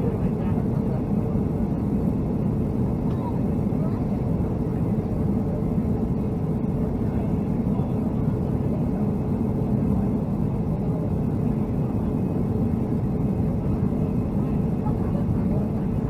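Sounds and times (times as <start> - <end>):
airliner cabin engine drone: 0.0 - 16.0.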